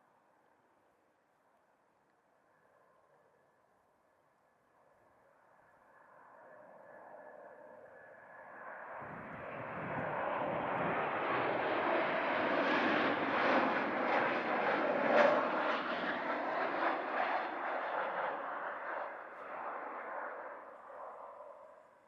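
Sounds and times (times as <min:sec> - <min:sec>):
jet plane passing by: 0:05.5 - 0:22.0.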